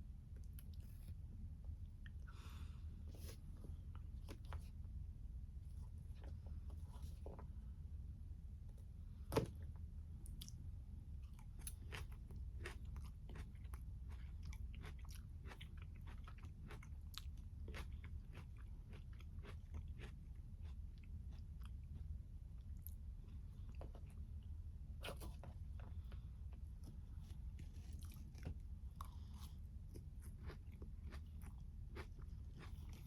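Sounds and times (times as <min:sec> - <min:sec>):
steady low hum: 0:00.0 - 0:33.0
close chewing with wet clicks: 0:11.2 - 0:24.2, 0:27.9 - 0:33.0.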